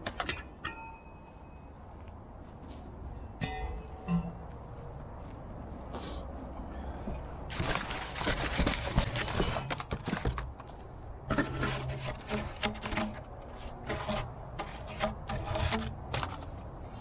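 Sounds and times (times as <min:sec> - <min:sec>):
packing rustling and scraping: 0:07.5 - 0:17.0.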